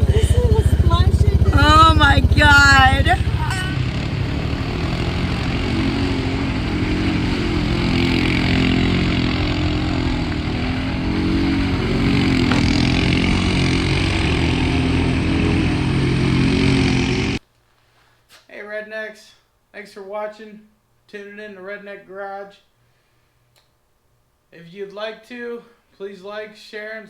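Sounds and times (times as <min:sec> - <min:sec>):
atv engine running: 0:00.0 - 0:17.4.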